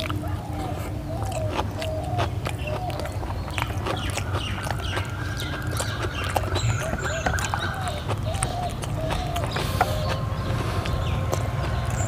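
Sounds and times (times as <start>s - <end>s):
wet chewing and lip-smacking: 0.0s - 12.0s.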